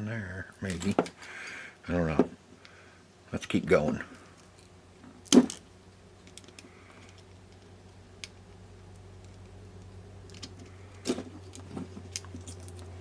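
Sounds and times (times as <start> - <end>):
low steady hum: 0.0 - 13.0
small tools clicking and tapping: 9.2 - 12.9.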